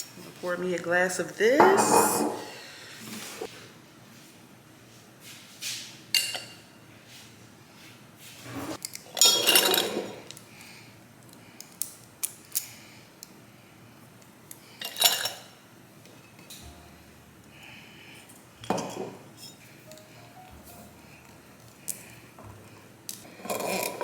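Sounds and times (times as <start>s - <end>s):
dishes and pans clattering: 1.6s - 2.6s, 9.2s - 10.3s, 18.6s - 19.6s.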